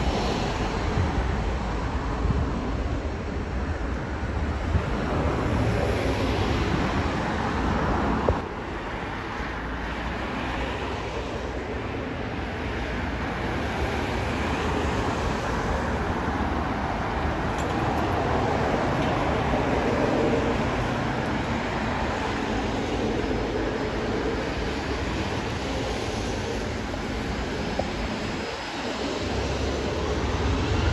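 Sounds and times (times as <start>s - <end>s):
aircraft engine rushing: 10.2s - 30.9s.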